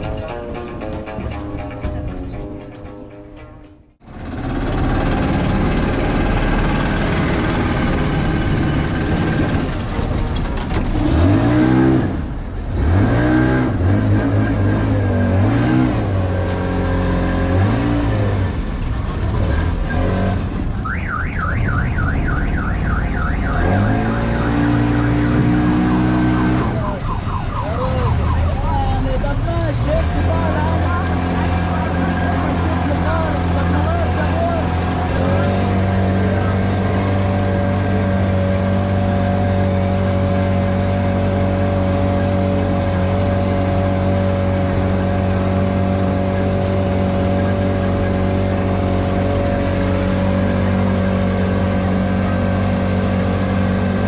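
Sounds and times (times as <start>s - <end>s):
motorboat engine running: 4.0s - 11.0s
low voices: 26.6s - 38.4s.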